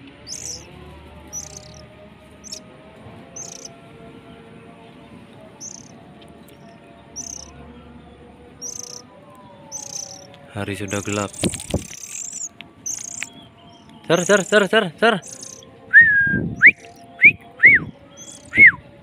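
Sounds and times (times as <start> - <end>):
bird chirping: 0.0 - 1.8, 2.4 - 2.6, 3.4 - 3.7, 5.6 - 7.5, 8.5 - 15.7, 16.6 - 18.7
distant call to prayer on loudspeaker: 0.0 - 11.5, 12.8 - 15.9.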